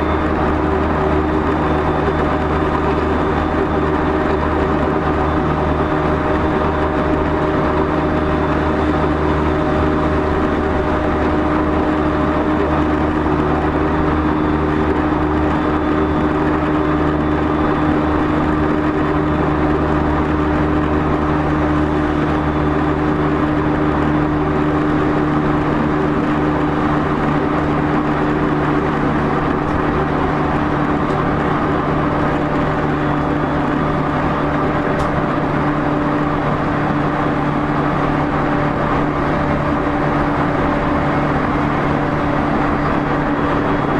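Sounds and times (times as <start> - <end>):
train motor hum: 0.0 - 43.9
train wheels rumbling on rail: 0.0 - 43.9.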